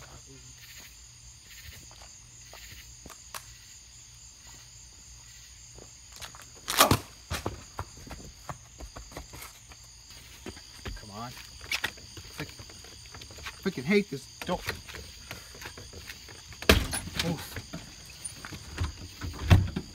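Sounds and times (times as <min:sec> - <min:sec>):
insect chirring: 0:00.0 - 0:19.9
footsteps: 0:01.6 - 0:03.5, 0:05.7 - 0:19.2.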